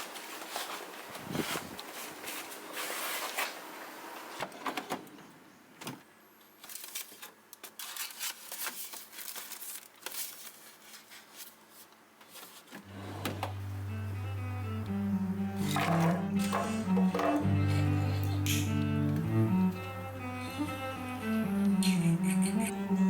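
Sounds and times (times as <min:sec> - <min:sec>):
plastic trays clicking and rustling: 0:06.6 - 0:11.6
music: 0:12.9 - 0:23.0.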